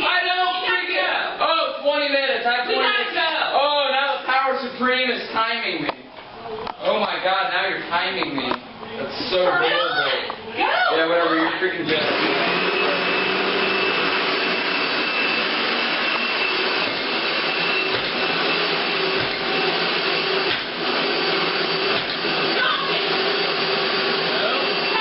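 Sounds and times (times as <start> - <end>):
vacuum cleaner running with whine: 11.0 - 25.0.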